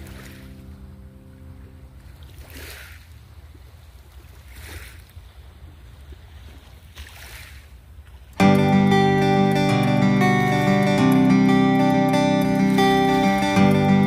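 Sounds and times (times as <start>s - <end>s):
waves washing on shore: 0.0s - 8.5s.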